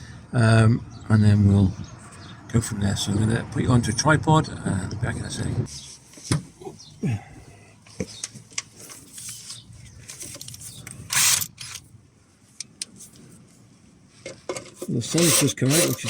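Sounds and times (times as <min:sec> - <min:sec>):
tripod handling clicks and creaks: 0:08.0 - 0:11.8
loud scrape: 0:15.0 - 0:16.0.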